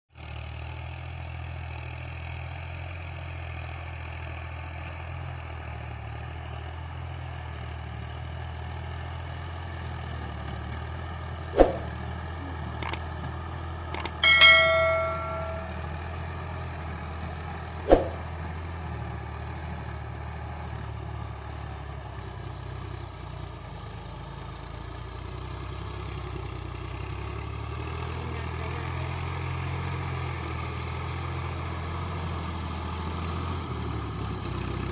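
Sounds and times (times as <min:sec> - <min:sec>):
sharp knock: 0:11.6 - 0:11.9, 0:14.0 - 0:15.9, 0:17.9 - 0:18.2
ringing metallic clang: 0:11.6 - 0:12.0, 0:14.0 - 0:16.0, 0:17.9 - 0:18.2
clicks: 0:14.0 - 0:15.9.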